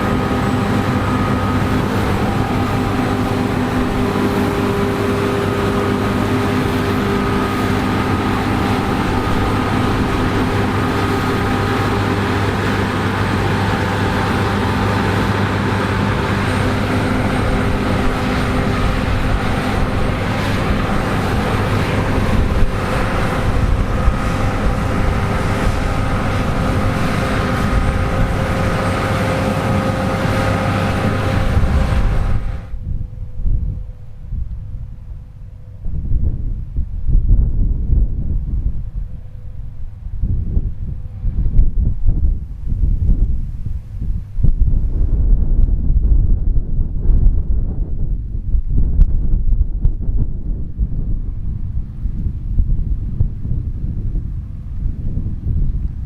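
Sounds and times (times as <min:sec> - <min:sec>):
machinery whining: 0:00.0 - 0:36.0
combine harvester engine hum: 0:00.0 - 0:56.0.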